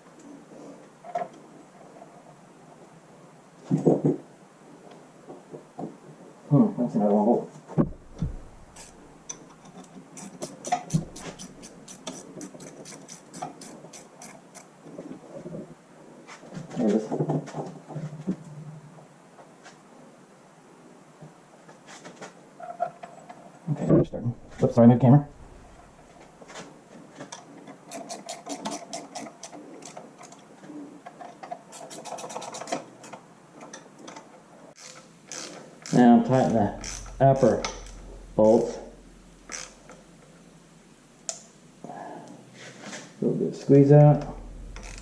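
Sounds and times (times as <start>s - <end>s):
dull knock: 7.8s - 8.7s
socket ratchet clicking: 8.1s - 14.7s, 34.8s - 36.0s, 36.8s - 38.4s, 39.0s - 40.0s, 44.4s - 45.0s.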